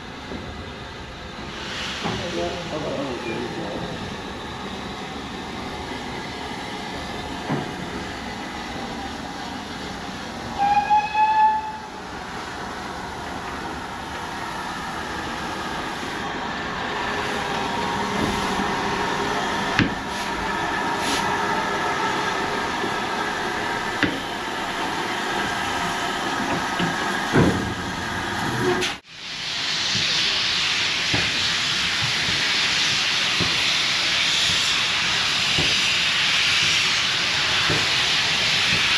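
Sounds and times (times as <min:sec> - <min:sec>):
steam hissing: 0:01.4 - 0:11.2, 0:11.9 - 0:38.9
steam locomotive whistle: 0:10.6 - 0:11.9.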